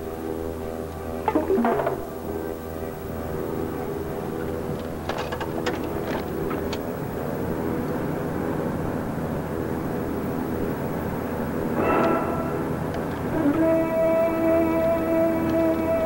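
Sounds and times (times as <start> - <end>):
car engine running: 3.2 - 8.0.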